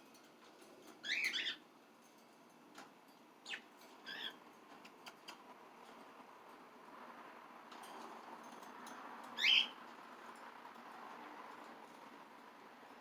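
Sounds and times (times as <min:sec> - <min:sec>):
small parrots chirping: 0:01.0 - 0:01.6, 0:03.4 - 0:04.4, 0:09.4 - 0:09.8.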